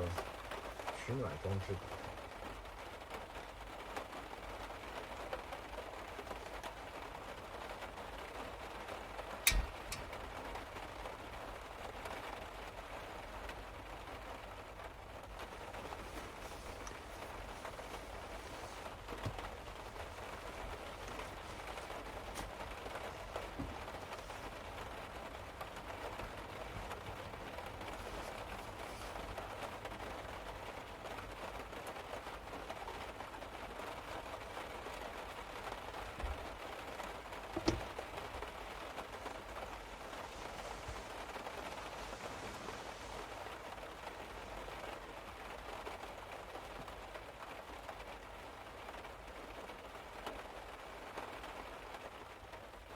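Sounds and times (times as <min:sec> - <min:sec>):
rain on a car roof: 0:00.0 - 0:52.9
light knocks: 0:09.4 - 0:10.2, 0:37.5 - 0:38.1.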